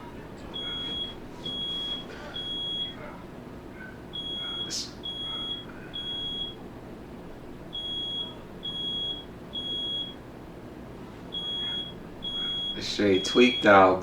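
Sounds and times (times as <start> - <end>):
smoke alarm beeping: 0.0 - 3.2, 4.0 - 10.3, 11.3 - 14.0.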